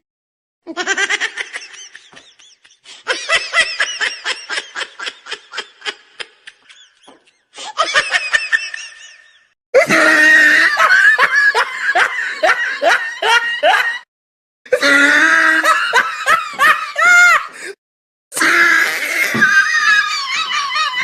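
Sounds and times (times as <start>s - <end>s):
woman laughing: 0.7s - 9.9s, 10.6s - 14.0s, 15.6s - 17.5s, 19.4s - 21.0s.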